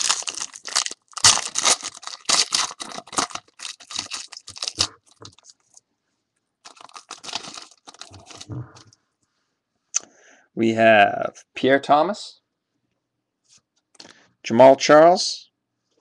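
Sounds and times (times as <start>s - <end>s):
wrapper tearing and crinkling: 0.0s - 5.8s, 6.6s - 8.5s.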